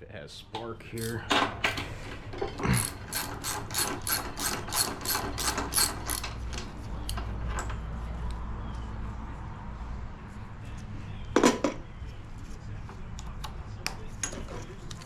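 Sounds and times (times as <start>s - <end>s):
ratchet wrench clicking: 1.0s - 1.3s, 2.8s - 7.2s.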